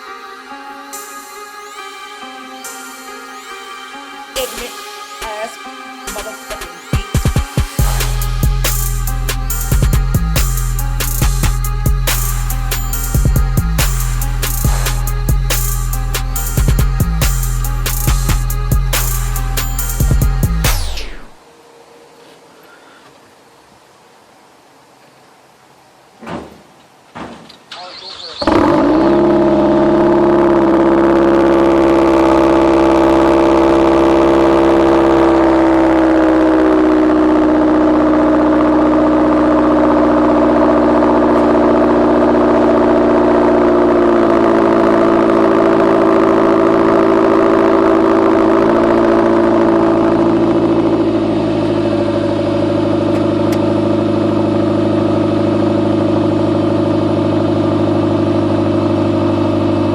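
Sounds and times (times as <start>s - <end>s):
car engine starting and idling: 7.6s - 21.4s, 27.8s - 59.9s.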